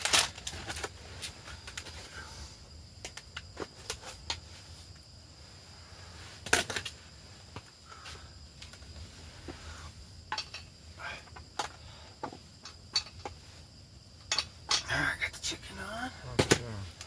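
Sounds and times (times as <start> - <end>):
faint steady hiss: 0.0 - 17.0
small clicks and knocks: 10.3 - 13.4.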